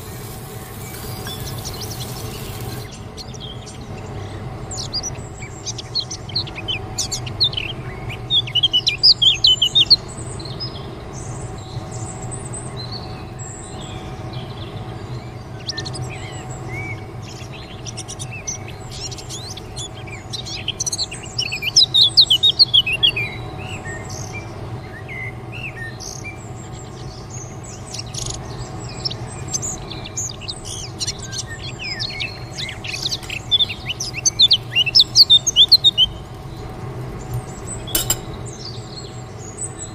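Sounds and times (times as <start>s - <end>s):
birds chirping in rapid bursts: 0.0s - 3.8s, 29.6s - 39.4s.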